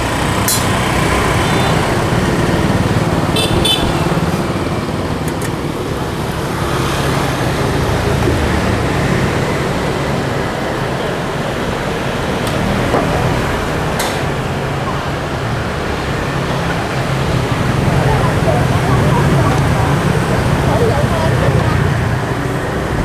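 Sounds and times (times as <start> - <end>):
motorbike and car engines passing: 0.0 - 23.0.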